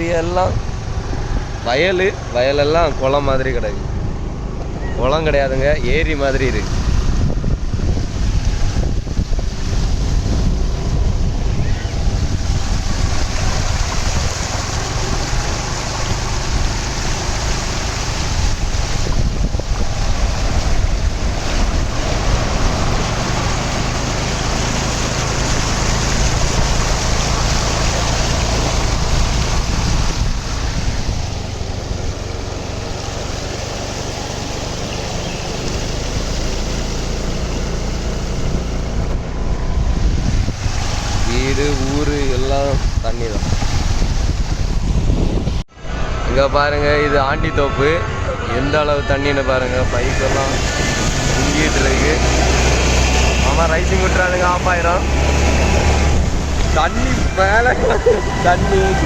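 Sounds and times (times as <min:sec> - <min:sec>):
motorbike engine rumble: 0:00.0 - 0:46.2
wind buffeting microphone: 0:00.0 - 0:59.0.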